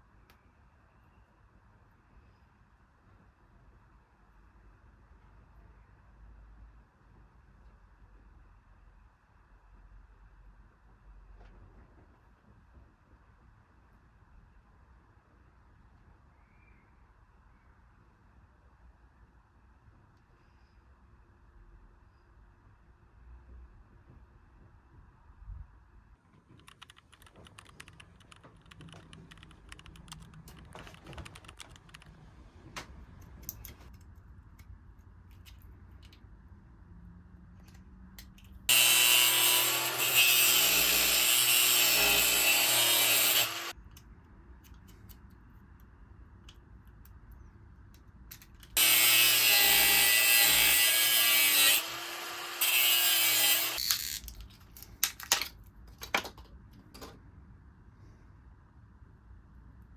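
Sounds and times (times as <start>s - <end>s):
handheld power tool motor: 38.7s - 43.7s, 48.8s - 54.3s.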